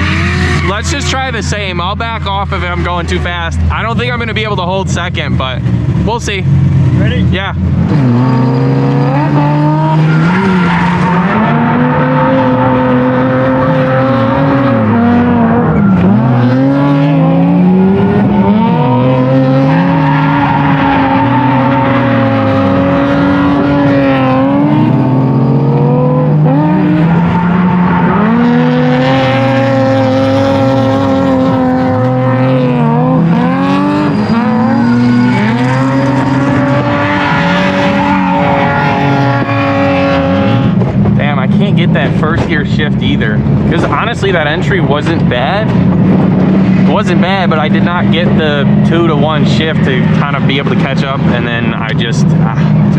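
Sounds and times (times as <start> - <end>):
rotary engine at high revs: 0.0 - 52.9
tyre squeal: 8.0 - 24.4, 33.5 - 40.8.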